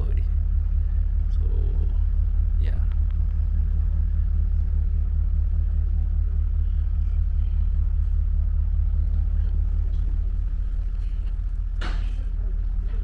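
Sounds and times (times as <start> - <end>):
train engine hum and rumble: 0.0 - 13.0.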